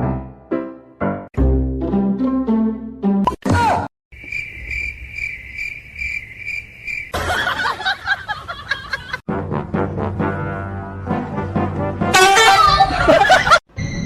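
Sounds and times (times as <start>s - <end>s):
music: 0.0s - 3.4s, 9.3s - 12.9s
high-pitched chirping trill: 4.2s - 7.1s.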